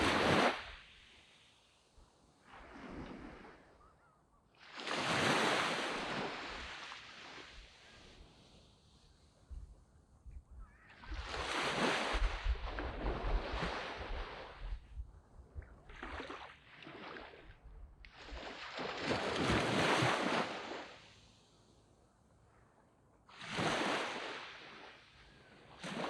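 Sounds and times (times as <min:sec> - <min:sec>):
waves breaking on a beach: 0:00.0 - 0:26.0.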